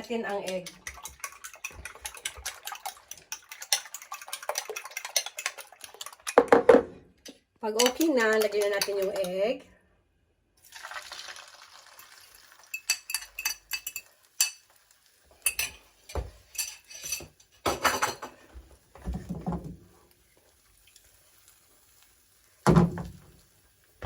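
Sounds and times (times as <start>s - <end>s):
metal utensils clinking on bowl: 0.0s - 6.5s, 7.8s - 9.5s, 12.0s - 14.7s, 15.4s - 18.4s.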